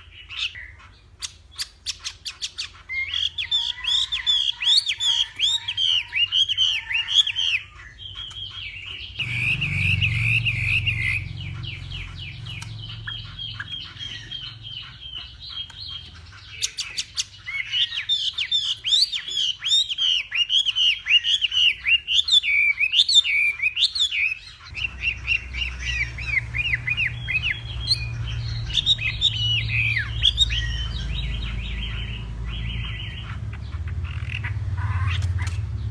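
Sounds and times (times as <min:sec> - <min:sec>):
bird singing whistles: 0:04.2 - 0:14.9, 0:16.6 - 0:33.2
low hum: 0:09.2 - 0:14.8.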